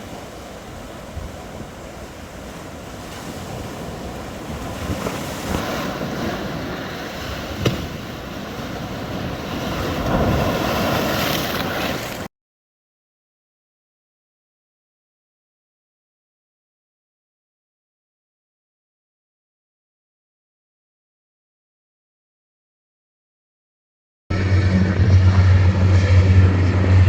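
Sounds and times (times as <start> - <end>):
wind buffeting microphone: 0.0 - 12.2
jet engine roar: 24.3 - 27.0.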